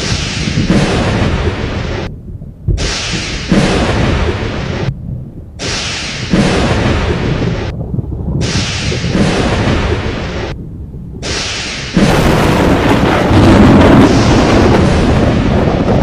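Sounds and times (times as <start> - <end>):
deep thunder rumble: 0.0 - 16.0
thunder claps: 0.0 - 16.0.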